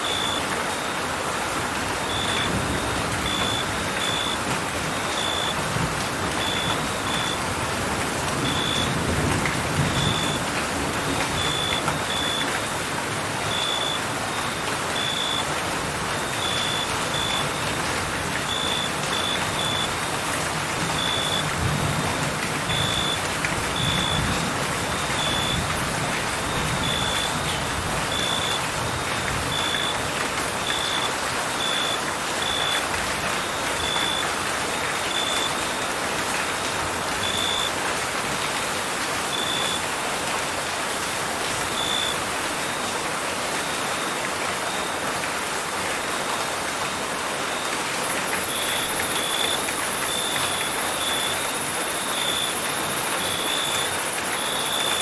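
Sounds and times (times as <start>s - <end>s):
steady rain: 0.0s - 55.0s
crickets chirping: 2.1s - 4.4s, 5.0s - 5.6s, 16.2s - 17.6s, 22.7s - 23.2s, 47.5s - 55.0s.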